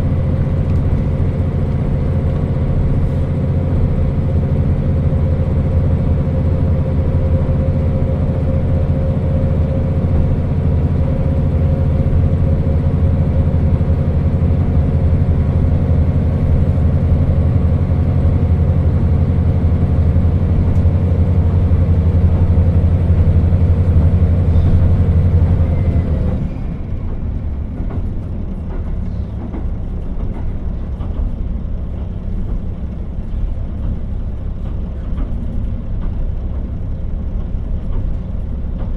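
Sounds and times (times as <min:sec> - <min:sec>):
diesel engine pulling: 0:00.0 - 0:38.9
wheels rumbling on rails: 0:00.0 - 0:38.9.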